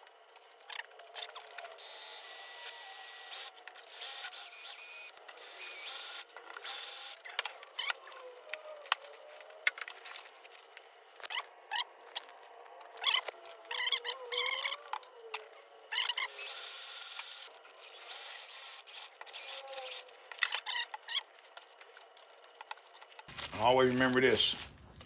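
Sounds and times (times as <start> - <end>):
drill whining with scraping hiss: 1.2 - 10.4, 13.1 - 21.5
metal parts rubbing: 12.9 - 23.3.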